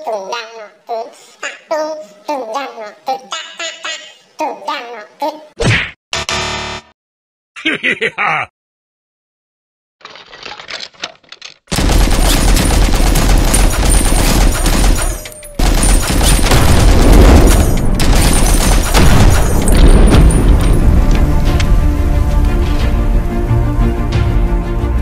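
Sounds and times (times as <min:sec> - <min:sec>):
machine-gun fire: 0:11.7 - 0:21.8.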